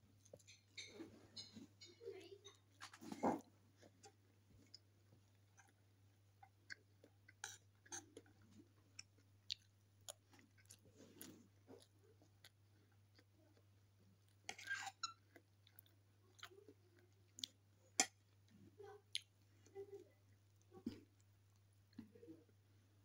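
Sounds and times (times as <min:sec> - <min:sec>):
person chewing: 0:03.4 - 0:19.8
fork scraping plate: 0:14.5 - 0:15.2.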